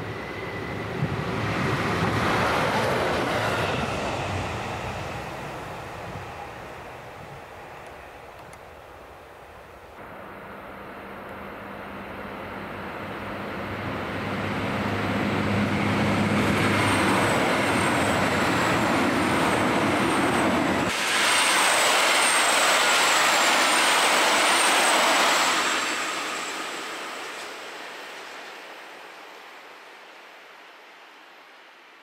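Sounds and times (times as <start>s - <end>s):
wheels rushing on rail: 0.0s - 32.0s
diesel engines humming: 10.0s - 20.9s.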